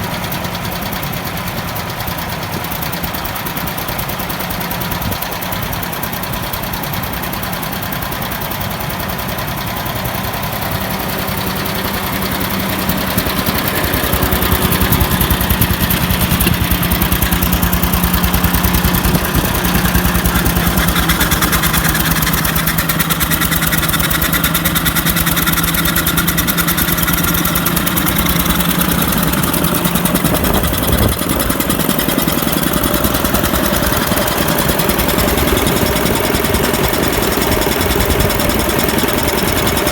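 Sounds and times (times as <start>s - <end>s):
air compressor: 0.0s - 39.9s
engine running steadily: 0.0s - 39.9s.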